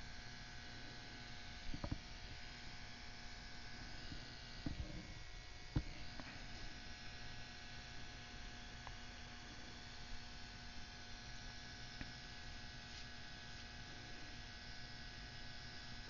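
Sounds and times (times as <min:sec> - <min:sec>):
hot-air tool blowing: 0:03.4 - 0:08.0.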